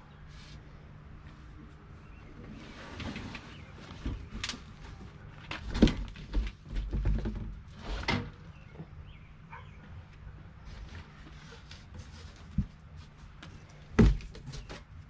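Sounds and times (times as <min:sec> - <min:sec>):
parts and packaging knocking: 0:13.9 - 0:14.9.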